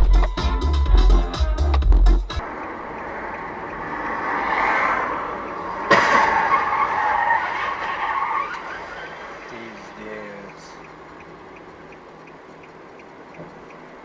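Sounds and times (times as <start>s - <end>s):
car tyres skidding: 2.4s - 11.4s
car crash impact: 4.0s - 9.3s.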